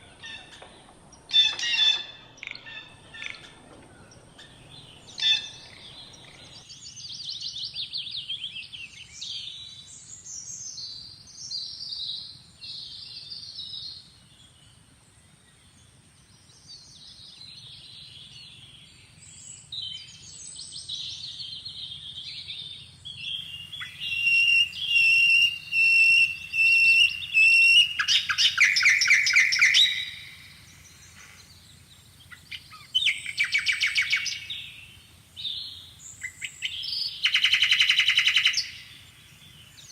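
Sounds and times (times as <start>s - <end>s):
birds chirping and calling: 0.0s - 6.7s, 19.6s - 39.9s
fast loud bird trills: 0.0s - 6.7s, 23.1s - 31.6s, 32.2s - 39.9s
high bird whistle: 23.4s - 30.4s.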